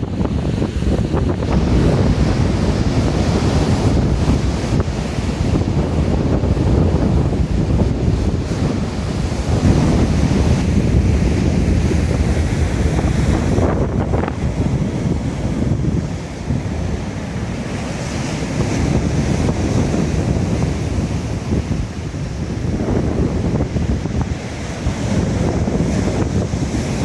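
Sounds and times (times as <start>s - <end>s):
sea waves breaking on shore: 0.0s - 27.0s
wind buffeting microphone: 0.0s - 27.0s.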